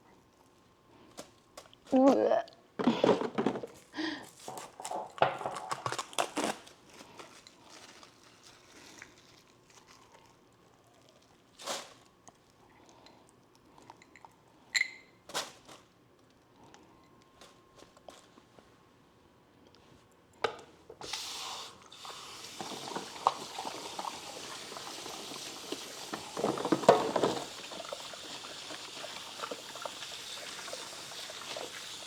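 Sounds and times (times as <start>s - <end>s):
plastic packaging crinkling: 4.4s - 12.1s.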